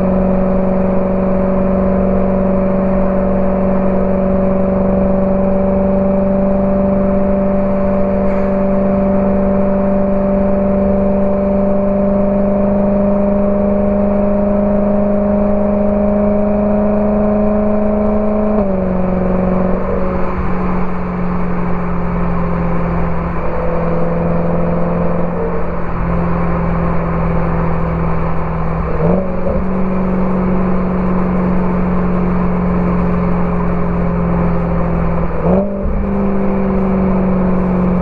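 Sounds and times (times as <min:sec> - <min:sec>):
car engine revving: 0:08.8 - 0:38.0.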